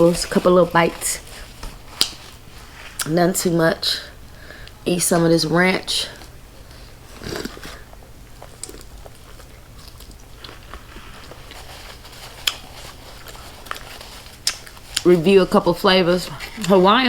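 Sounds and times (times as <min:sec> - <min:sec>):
person biting and chewing: 0:07.1 - 0:15.1.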